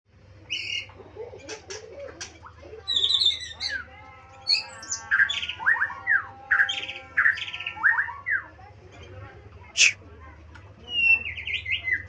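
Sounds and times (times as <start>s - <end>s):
songbird singing whistled notes: 10.8s - 12.0s.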